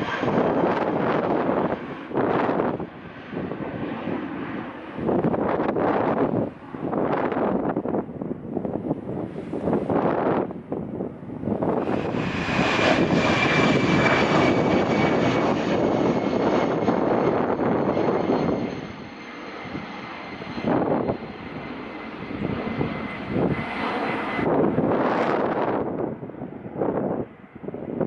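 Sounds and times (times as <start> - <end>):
jet engines roaring: 0.0 - 28.0
wind buffeting microphone: 0.0 - 28.0
high engine whine: 8.6 - 27.2.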